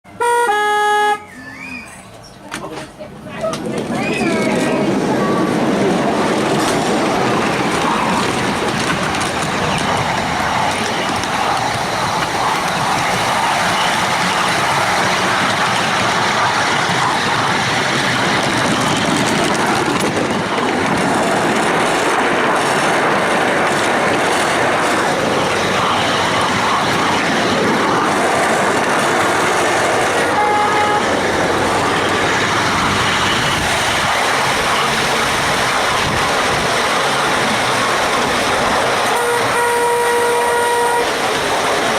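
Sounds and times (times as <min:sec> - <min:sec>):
miniature train wheels rolling: 0:06.4 - 0:30.2.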